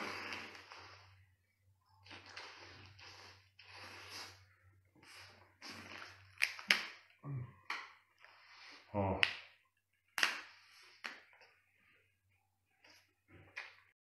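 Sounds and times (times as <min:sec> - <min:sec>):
wet chewing and slurping: 0:00.0 - 0:01.2, 0:01.9 - 0:07.1
low voice hum: 0:07.2 - 0:07.6.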